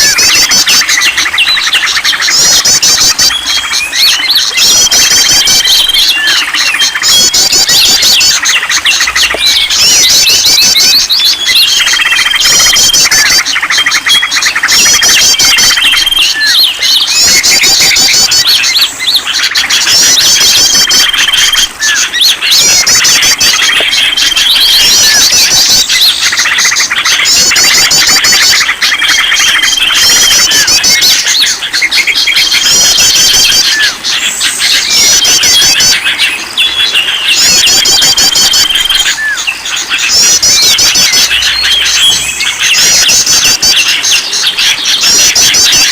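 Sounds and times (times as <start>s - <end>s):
songbirds chirping: 0.0s - 45.9s
high bird whistle: 36.6s - 44.3s.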